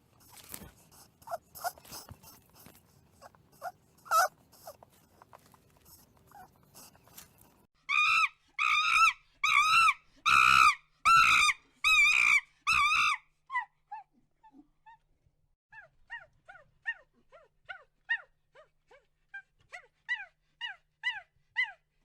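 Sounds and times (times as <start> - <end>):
faint scratching and clicking: 0.0 - 7.7
animal high wavering calls: 3.6 - 4.8, 7.9 - 13.2.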